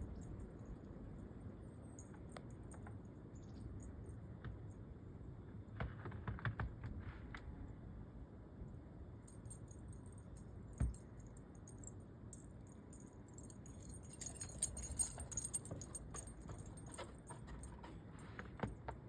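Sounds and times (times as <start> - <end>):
small metal pieces jingling: 12.9 - 18.0.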